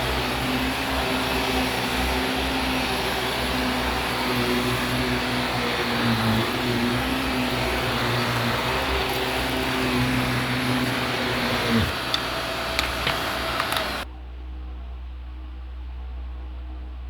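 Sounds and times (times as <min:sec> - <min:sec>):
vacuum cleaner running on carpet: 0:00.0 - 0:14.1
sharp clicks: 0:11.9 - 0:14.0.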